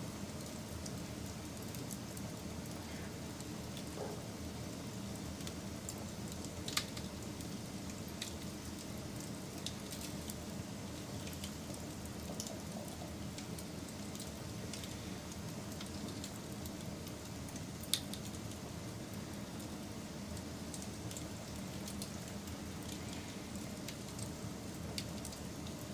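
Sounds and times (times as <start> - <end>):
campfire rushing: 0.1 - 25.9
fire crackling and popping: 0.1 - 25.9.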